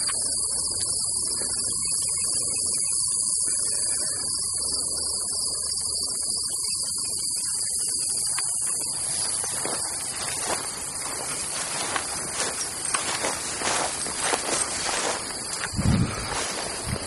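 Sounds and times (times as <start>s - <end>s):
crickets and insects chirping: 0.0s - 17.0s
rustling through grass and brush: 8.6s - 17.0s.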